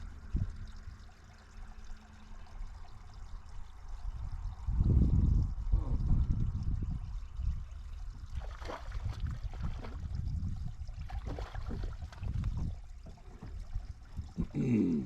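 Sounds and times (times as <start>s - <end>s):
water splashing and trickling: 0.0s - 15.0s.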